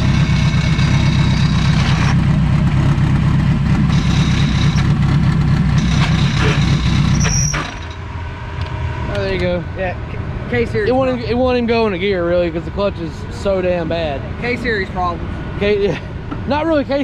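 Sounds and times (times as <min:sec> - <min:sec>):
car engine idling roughly: 0:00.0 - 0:08.0.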